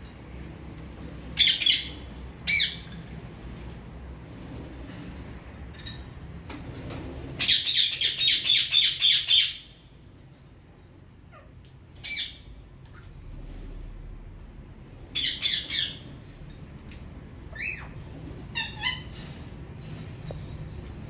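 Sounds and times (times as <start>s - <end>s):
parrot squawking: 1.4s - 3.0s, 7.4s - 9.8s, 11.3s - 13.1s, 15.1s - 16.1s, 17.5s - 19.2s.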